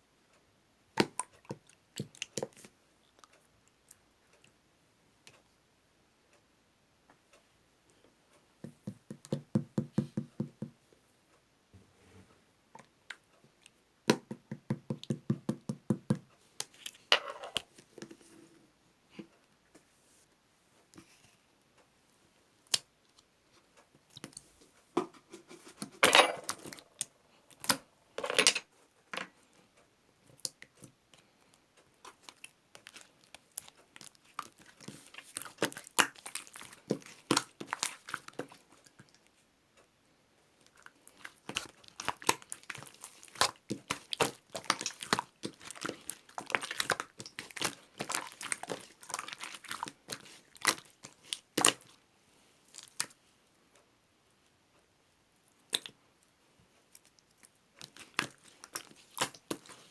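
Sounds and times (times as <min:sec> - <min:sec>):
slime squished by hand: 0:32.1 - 0:38.9, 0:40.8 - 0:52.0, 0:57.8 - 0:59.9.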